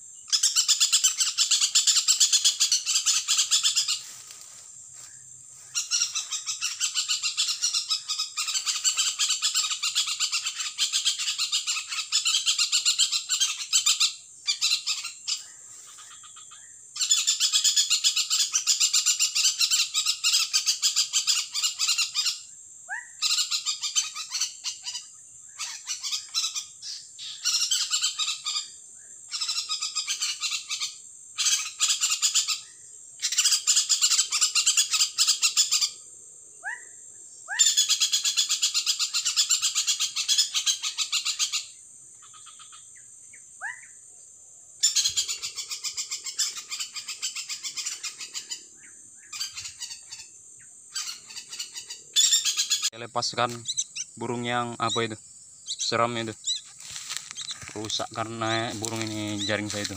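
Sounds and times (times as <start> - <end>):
bird screeching harshly: 0.3 - 4.2, 5.7 - 16.2, 29.4 - 32.6, 37.5 - 41.7, 50.9 - 55.1, 55.7 - 59.9.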